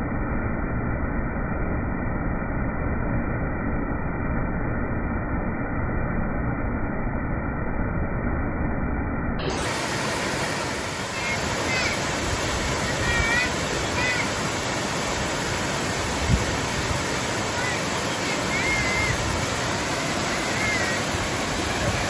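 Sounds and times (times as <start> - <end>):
waterfall rushing: 9.4 - 22.0.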